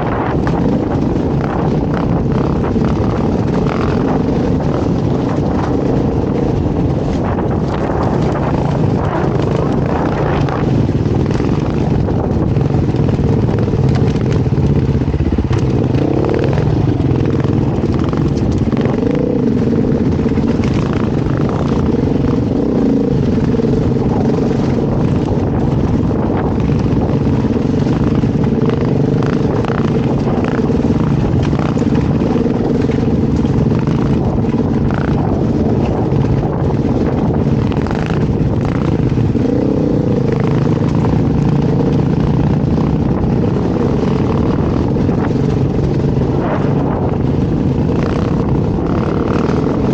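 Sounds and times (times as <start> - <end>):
dirt bike engine running: 0.0 - 49.9
clicks and rattles: 0.2 - 19.4.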